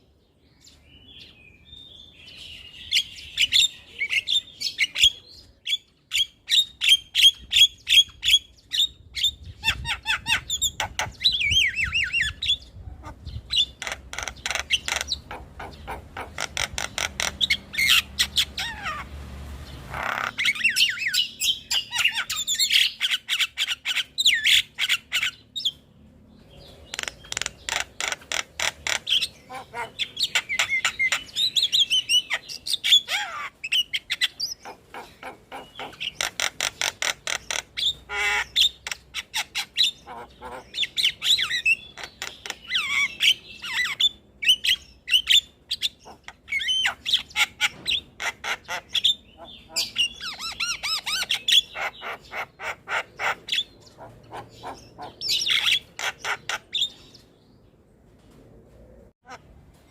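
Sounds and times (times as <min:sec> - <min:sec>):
myna bird song: 0:00.0 - 0:59.9
harsh rasping bird call: 0:19.8 - 0:25.4, 0:26.9 - 0:44.6.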